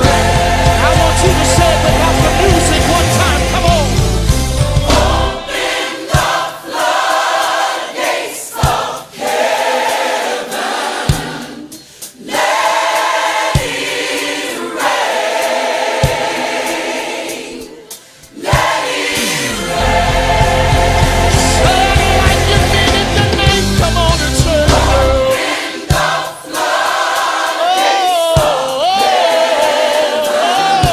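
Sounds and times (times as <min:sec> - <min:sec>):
band playing with bass: 0:00.0 - 0:05.5, 0:19.2 - 0:25.4
low drum beat: 0:00.0 - 0:05.5, 0:19.7 - 0:26.2
gospel choir singing held chords: 0:00.0 - 0:30.9.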